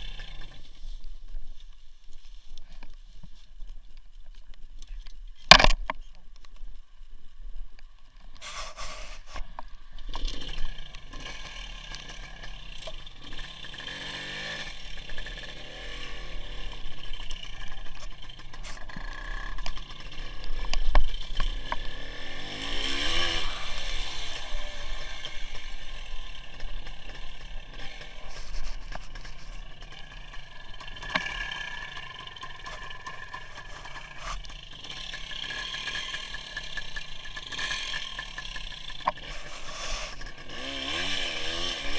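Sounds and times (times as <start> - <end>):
two-stroke motorcycle engine running: 0.0 - 0.9, 9.7 - 41.9
road noise: 0.0 - 41.9.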